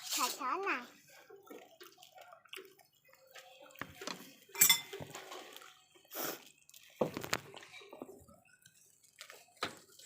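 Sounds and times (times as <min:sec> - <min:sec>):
bowls and spoons clinking: 0:03.8 - 0:05.7.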